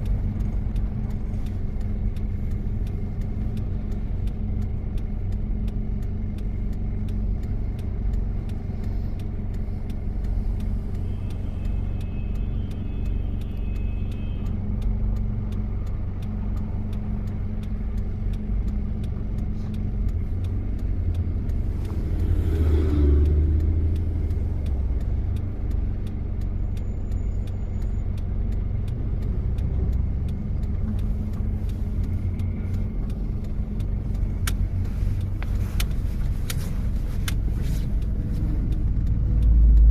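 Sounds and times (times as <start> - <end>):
diesel engine droning: 0.0 - 39.9
road noise: 0.0 - 39.9
rush and rumble: 28.0 - 39.9.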